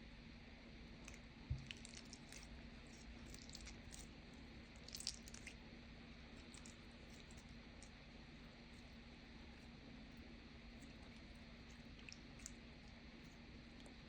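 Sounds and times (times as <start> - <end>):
low steady hum: 0.0 - 14.0
slime squishing and crackling: 1.1 - 5.6, 6.4 - 8.0.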